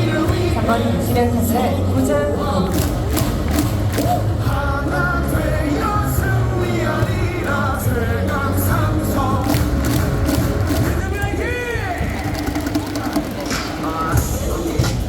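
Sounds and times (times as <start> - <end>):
crowd singing in unison: 0.0 - 11.3, 12.0 - 15.0
loud amplified music: 0.0 - 15.0
steady beat of sharp strikes: 2.6 - 5.6, 9.3 - 15.0.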